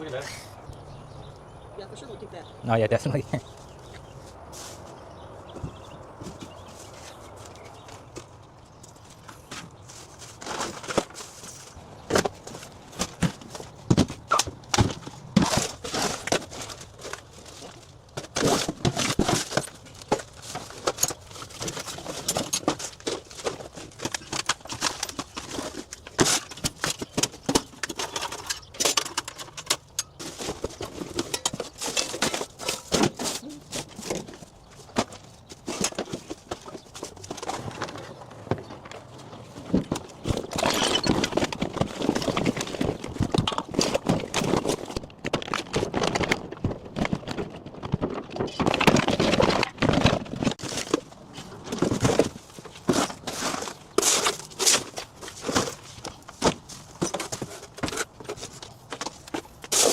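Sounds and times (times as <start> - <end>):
rustling and crinkling: 2.9 - 59.9
household items knocking and clattering: 12.0 - 59.9.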